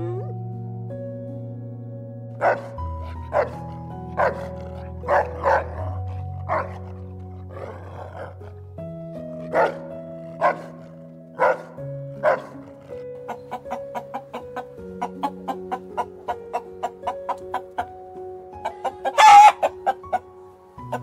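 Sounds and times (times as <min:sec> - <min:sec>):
gentle background music: 0:00.0 - 0:21.0
dog barking: 0:02.4 - 0:08.4, 0:09.5 - 0:12.6, 0:18.7 - 0:20.1.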